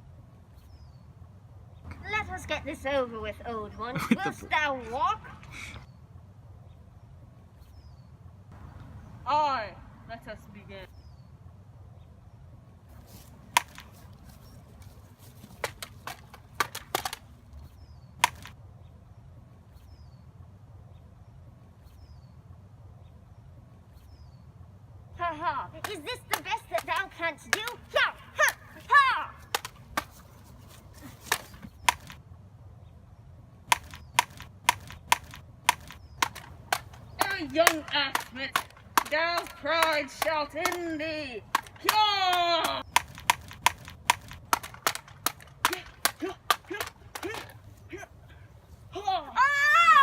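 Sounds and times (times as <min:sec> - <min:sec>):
prop swords clacking: 0:13.1 - 0:17.4, 0:18.2 - 0:18.6, 0:25.8 - 0:32.2, 0:33.7 - 0:47.7.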